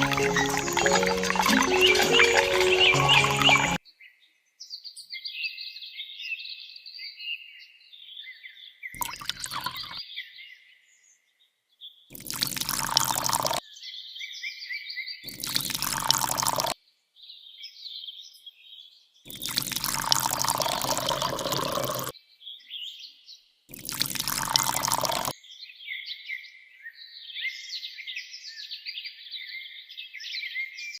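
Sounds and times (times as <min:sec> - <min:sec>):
birds chirping: 0:00.0 - 0:03.8, 0:09.0 - 0:10.0
water gushing from pump: 0:00.0 - 0:03.8, 0:09.0 - 0:10.0, 0:12.1 - 0:13.6, 0:15.3 - 0:16.8, 0:19.3 - 0:22.1, 0:23.7 - 0:25.3.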